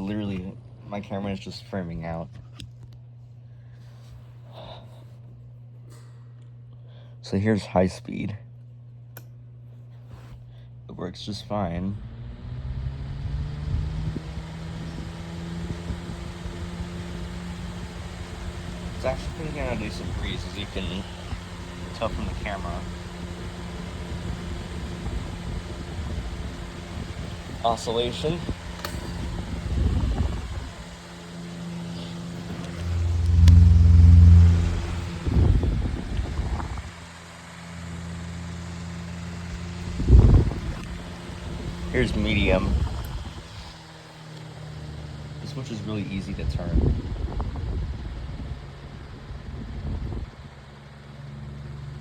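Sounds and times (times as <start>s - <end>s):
electric fan running: 0.0s - 52.0s
air buffeting microphone: 13.8s - 37.0s, 39.5s - 43.8s.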